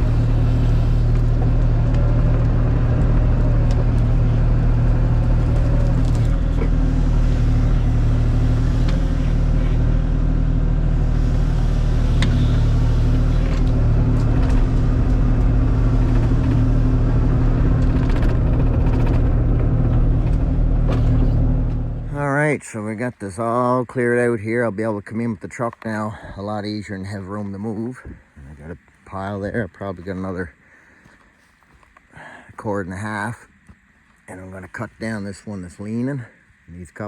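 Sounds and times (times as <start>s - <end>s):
excavator diesel engine running: 0.0s - 22.6s.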